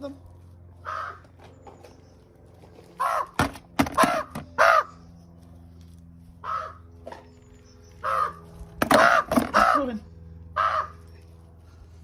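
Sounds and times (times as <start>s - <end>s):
magpie harsh calls: 0.8s - 1.2s, 3.0s - 3.4s, 4.0s - 5.0s, 6.4s - 6.9s, 8.0s - 10.0s, 10.6s - 11.0s.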